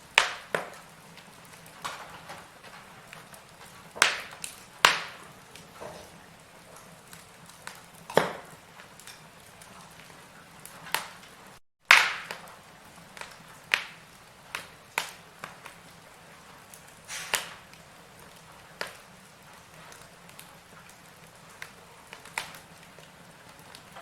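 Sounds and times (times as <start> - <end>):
faint steady hiss: 0.0 - 11.6
firewood crackling and popping: 0.0 - 24.0.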